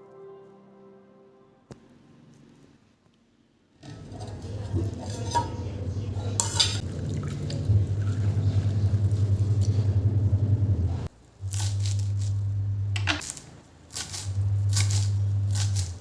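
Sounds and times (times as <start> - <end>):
appliance motor humming: 3.8 - 13.2, 14.3 - 16.0.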